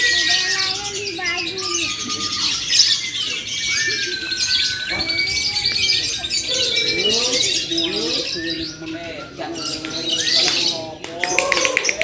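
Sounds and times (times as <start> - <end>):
lovebirds chirping and trilling: 0.0 - 12.0.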